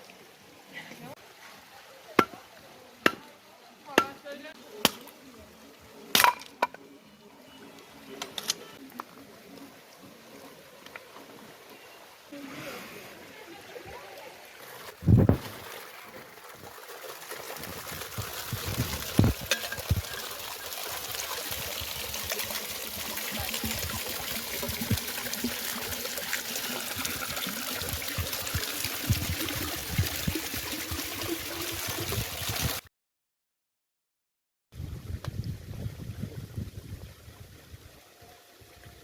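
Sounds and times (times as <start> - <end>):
water running: 14.6 - 32.8.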